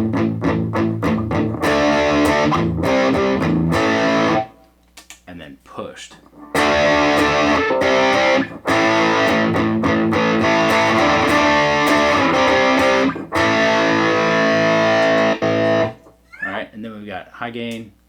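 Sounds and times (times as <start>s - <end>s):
distorted electric guitar chords: 0.0s - 4.6s, 6.3s - 16.1s.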